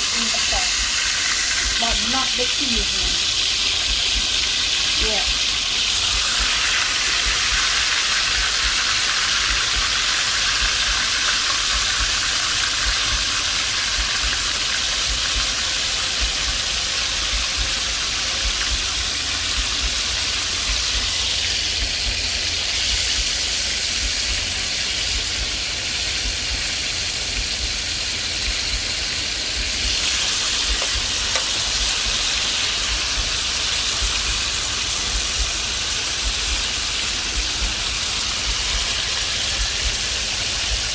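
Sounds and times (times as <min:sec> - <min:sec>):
meat sizzling in a pot: 0:00.0 - 0:40.9.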